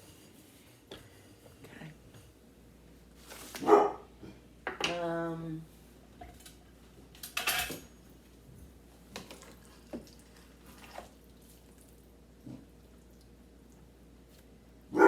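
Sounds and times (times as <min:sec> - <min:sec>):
kitchenware clinking and knocking: 0:07.3 - 0:08.0.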